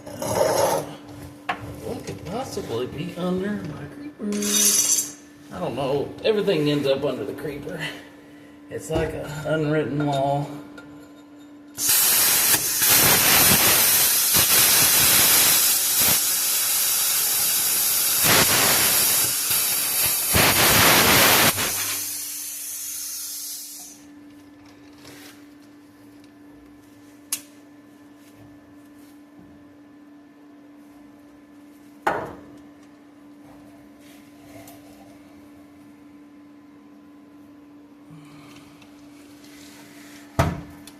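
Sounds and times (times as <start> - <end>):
plasma cutter hissing: 11.8 - 24.0.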